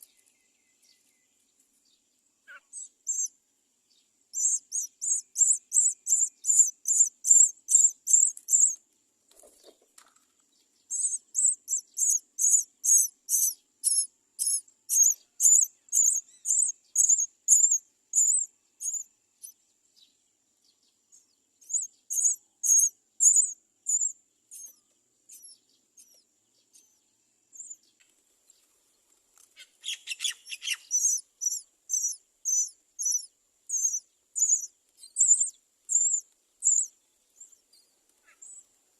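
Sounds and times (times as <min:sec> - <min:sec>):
nestlings cheeping: 0:02.8 - 0:03.3, 0:04.4 - 0:08.8, 0:10.9 - 0:19.1, 0:21.6 - 0:26.2, 0:30.1 - 0:36.9
harsh lower bird call: 0:29.6 - 0:36.9.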